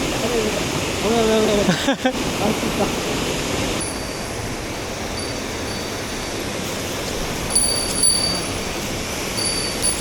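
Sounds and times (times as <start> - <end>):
mountain stream rushing: 0.0 - 10.0
small bell tinkling: 3.8 - 4.4, 5.1 - 6.1, 7.5 - 10.0.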